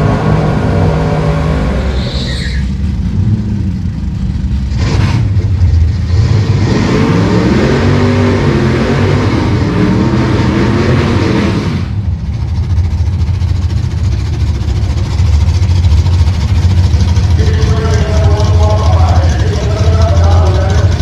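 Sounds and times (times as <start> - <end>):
high-pitched tyre squeal: 0.0 - 3.0
engines revving: 0.0 - 21.0.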